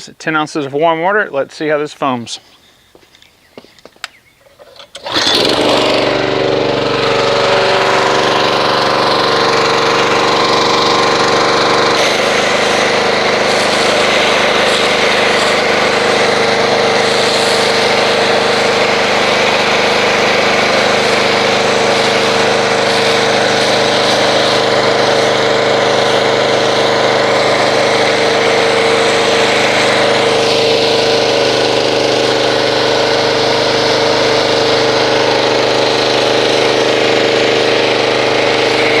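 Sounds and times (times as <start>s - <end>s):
pressure washer running: 4.6s - 39.0s
foam spray hiss: 11.9s - 25.4s.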